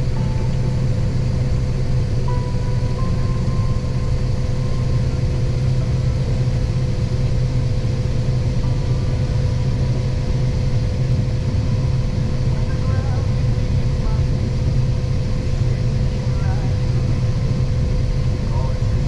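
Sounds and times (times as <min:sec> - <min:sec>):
tractor engine running: 0:00.0 - 0:12.7
faint steady whine: 0:00.0 - 0:19.0.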